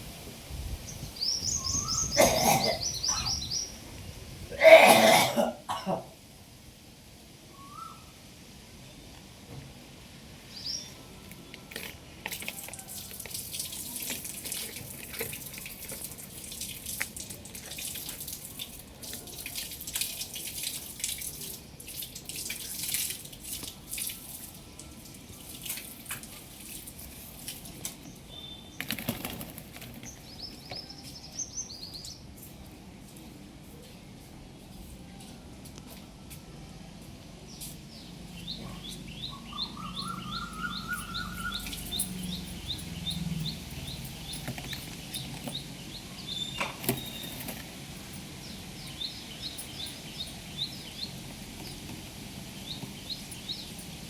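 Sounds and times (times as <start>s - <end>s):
parrot chirping: 39.3s - 41.9s.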